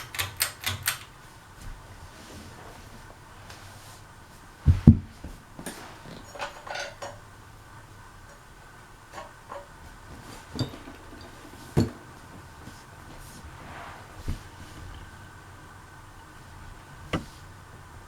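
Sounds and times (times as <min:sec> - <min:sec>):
ceiling fan hum: 0:00.0 - 0:18.0
clinks and knocks: 0:06.2 - 0:07.2, 0:10.5 - 0:12.4.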